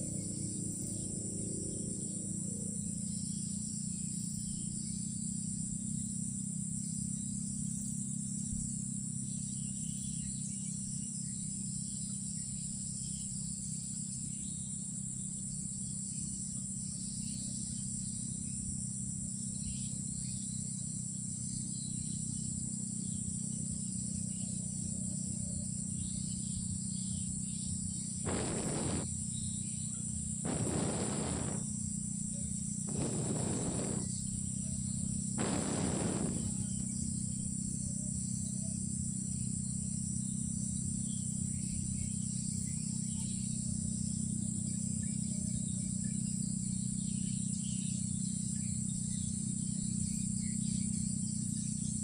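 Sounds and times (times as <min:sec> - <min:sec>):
crickets chirping: 0:24.3 - 0:40.9
low steady hum: 0:28.3 - 0:29.1, 0:30.5 - 0:34.2, 0:35.4 - 0:36.8
short bursts of noise: 0:28.3 - 0:29.1, 0:30.5 - 0:31.7, 0:32.9 - 0:34.2, 0:35.4 - 0:36.8.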